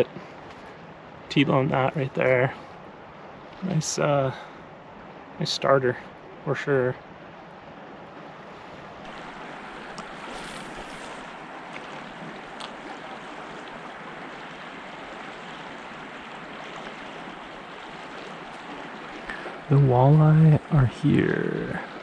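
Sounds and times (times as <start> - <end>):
river water rushing: 6.0 - 22.0.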